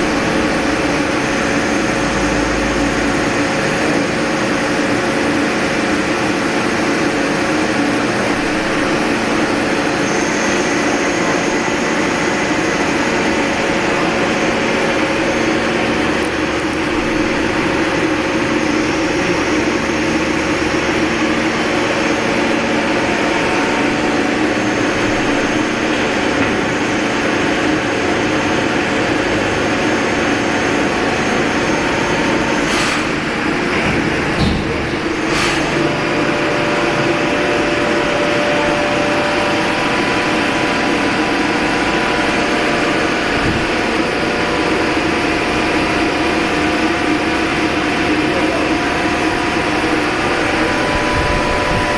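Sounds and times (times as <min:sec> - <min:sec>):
lathe running with hiss and whine: 0:00.0 - 0:51.9.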